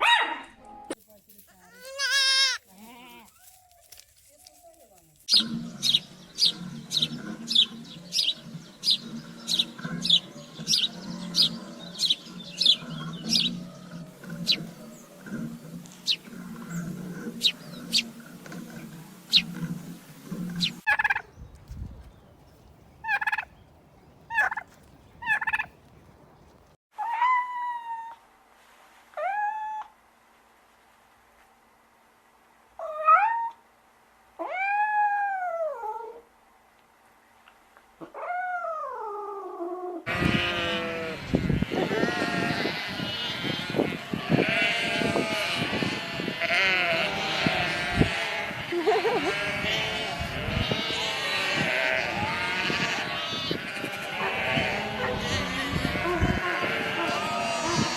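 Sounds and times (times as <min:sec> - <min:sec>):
drawn-out animal calls: 0:01.3 - 0:21.2, 0:40.1 - 0:57.9.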